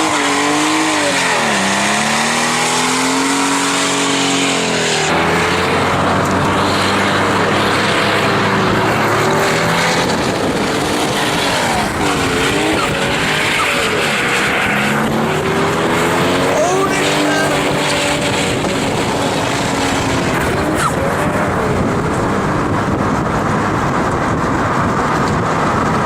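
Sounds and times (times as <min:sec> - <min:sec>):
car engine revving: 0:00.0 - 0:26.0
tyres squealing: 0:16.5 - 0:18.1.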